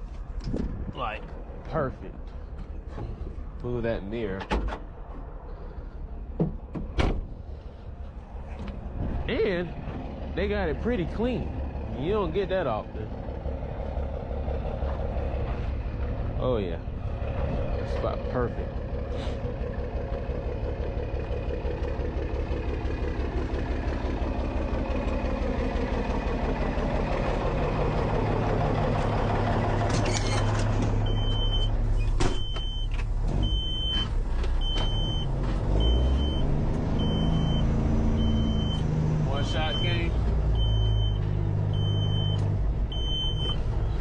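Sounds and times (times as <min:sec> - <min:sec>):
diesel engine running: 0:04.9 - 0:44.0
backup alarm beeping: 0:31.0 - 0:43.6.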